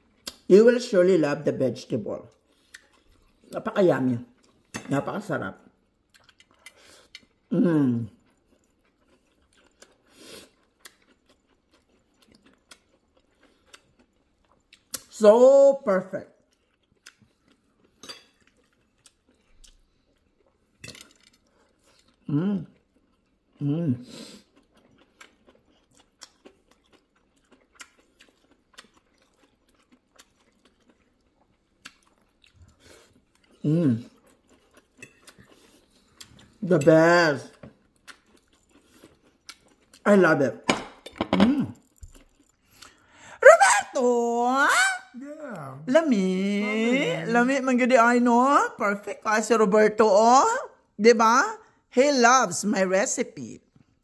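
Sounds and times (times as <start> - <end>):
person chewing food: 0.0 - 0.5, 2.3 - 4.8, 5.7 - 15.1, 16.4 - 40.1, 41.0 - 43.2.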